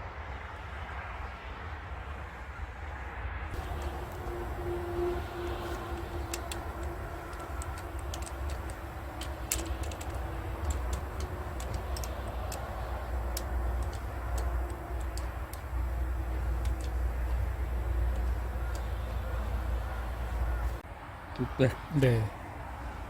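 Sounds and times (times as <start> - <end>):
hand tools clicking on engine parts: 3.6 - 20.8
steady low rumble: 3.6 - 20.8.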